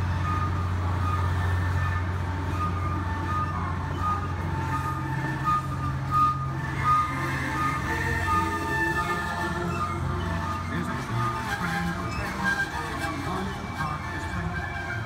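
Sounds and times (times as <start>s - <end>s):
crossing bell ringing: 0.0s - 12.0s
train cars rolling past: 0.0s - 15.0s.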